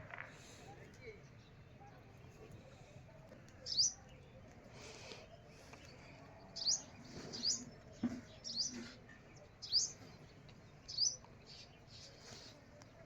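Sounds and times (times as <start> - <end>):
small bird chirping: 3.6 - 4.1, 6.4 - 12.4.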